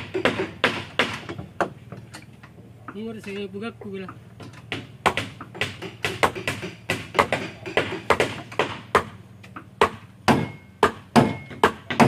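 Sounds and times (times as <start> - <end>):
hand tool striking wood: 0.0 - 2.0, 4.4 - 12.0.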